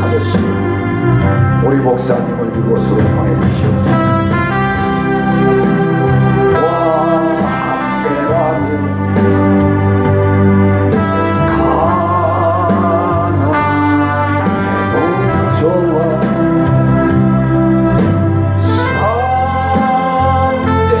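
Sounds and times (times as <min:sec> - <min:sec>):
hymn on keyboard and band: 0:00.0 - 0:21.0
person singing: 0:05.3 - 0:09.6, 0:11.0 - 0:17.2, 0:18.6 - 0:21.0.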